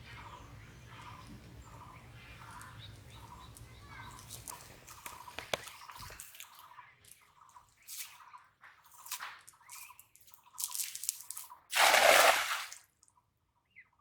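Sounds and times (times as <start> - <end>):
water dripping and splashing: 0.0 - 6.6, 9.1 - 12.8
sharp clicks: 3.4 - 6.2.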